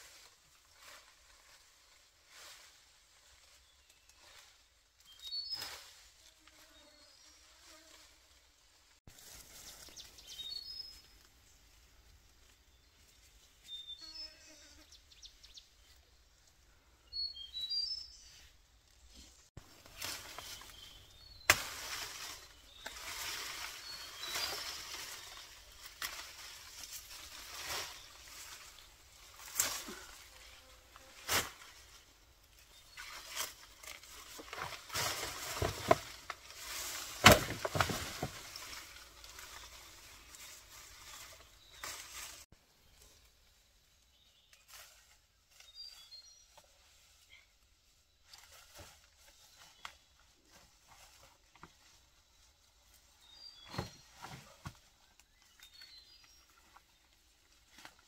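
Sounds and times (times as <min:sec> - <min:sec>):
rustling: 0:00.0 - 0:13.5, 0:18.3 - 0:43.3
birds chirping: 0:22.2 - 0:26.2.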